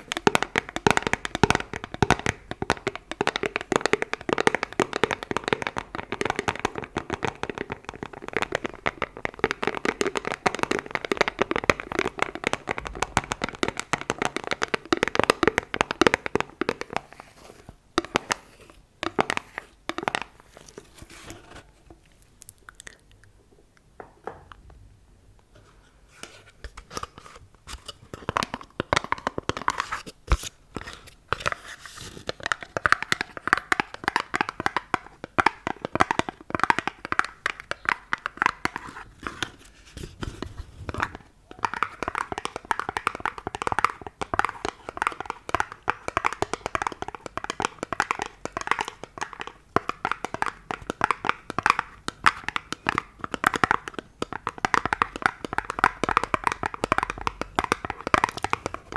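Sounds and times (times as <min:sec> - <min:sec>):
finger tapping on object: 0:41.0 - 0:58.9.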